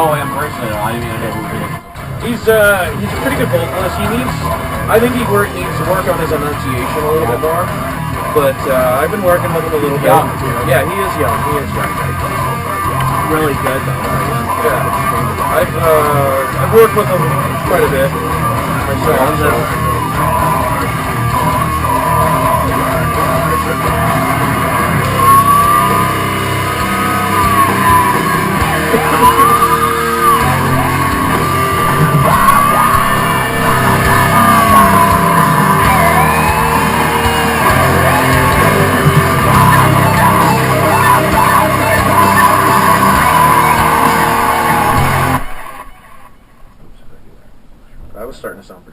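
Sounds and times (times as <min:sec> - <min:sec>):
person singing and yelling: 0:00.0 - 0:45.7
rock band playing: 0:00.0 - 0:45.9.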